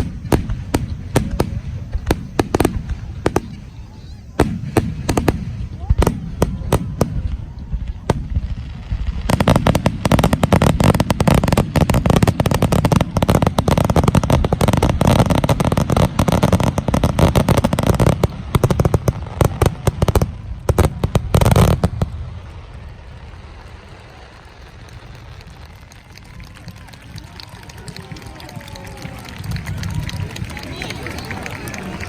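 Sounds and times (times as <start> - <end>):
fireworks bursting: 0.0 - 32.0.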